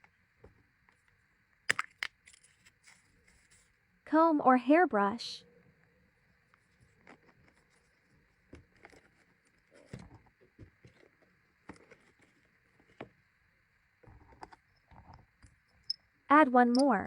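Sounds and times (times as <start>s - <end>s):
small items clicking and tapping: 0.9s - 3.7s, 14.0s - 16.0s
packaging rustling: 6.4s - 13.2s.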